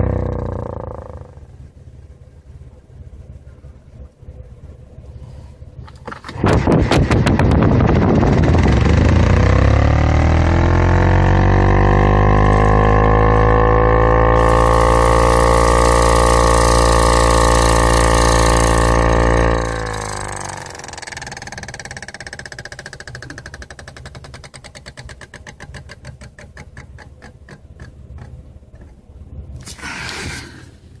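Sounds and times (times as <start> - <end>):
car air conditioner drone: 0.0 - 24.7
quiet rattle: 14.5 - 29.4
short hiss: 29.6 - 30.8.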